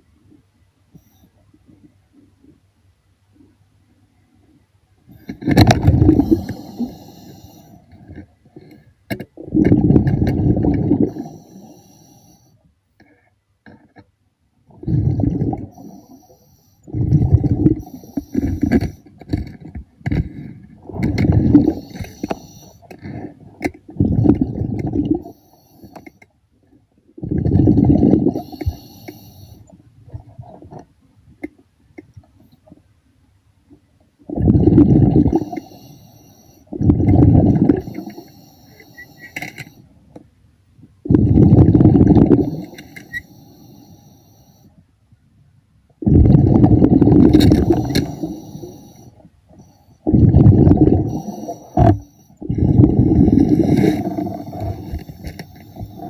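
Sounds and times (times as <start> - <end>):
underwater air bubbles rumbling: 5.5 - 7.0, 9.4 - 11.3, 14.7 - 15.8, 16.9 - 18.8, 20.8 - 22.4, 23.9 - 25.3, 27.2 - 28.8, 34.3 - 35.6, 36.8 - 38.0, 41.1 - 42.6, 46.0 - 48.4, 50.1 - 56.0.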